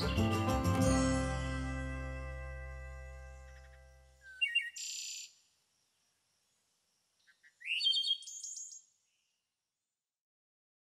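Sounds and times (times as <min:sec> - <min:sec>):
small bird chirping: 0:03.3 - 0:09.2.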